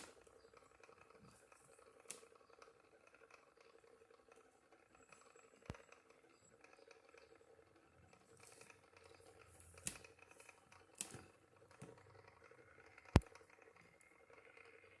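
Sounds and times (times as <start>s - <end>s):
small clicks and taps of handling: 8.1s - 14.6s.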